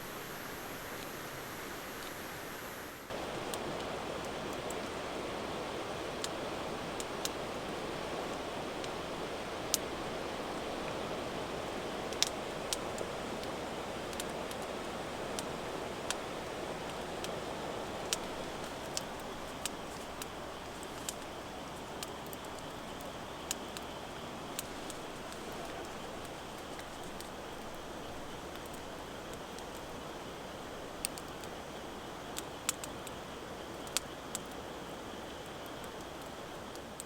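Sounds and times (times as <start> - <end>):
heavy rain hiss: 0.0 - 37.0.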